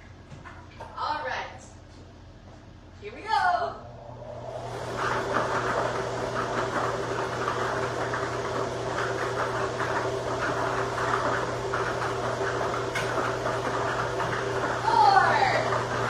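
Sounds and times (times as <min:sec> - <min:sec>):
motor hum: 0:00.0 - 0:16.0
balls rattling in machine: 0:05.0 - 0:16.0.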